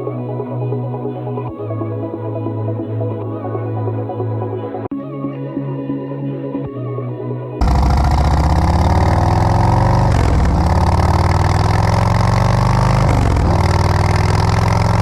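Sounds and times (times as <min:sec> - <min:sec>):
motorcycle engine running: 0:07.6 - 0:15.0.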